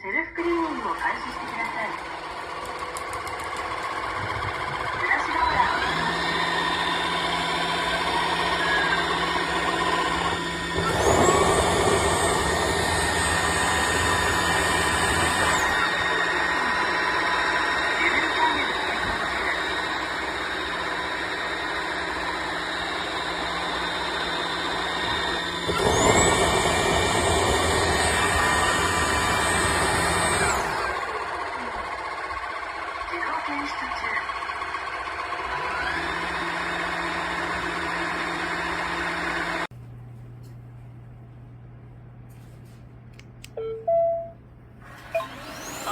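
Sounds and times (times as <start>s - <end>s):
vacuum motor humming: 0.5s - 40.7s, 44.8s - 45.9s
motor high whine: 3.8s - 34.7s, 44.8s - 45.9s.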